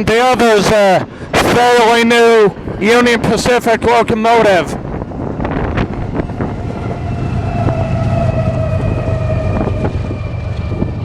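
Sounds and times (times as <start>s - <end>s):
freight train rumble: 0.0s - 11.0s
high ringing squeal: 5.7s - 11.0s.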